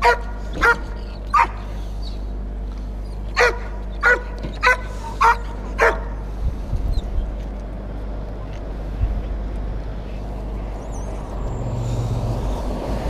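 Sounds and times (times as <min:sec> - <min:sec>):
dog barking: 0:00.0 - 0:01.7, 0:03.4 - 0:06.2
steady low hum: 0:00.0 - 0:13.0.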